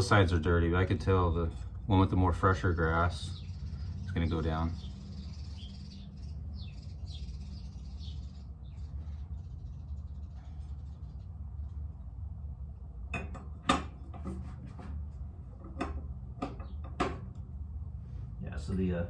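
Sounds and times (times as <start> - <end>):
birds chirping: 0.0 - 12.3, 16.4 - 17.3
steady low hum: 0.0 - 19.0.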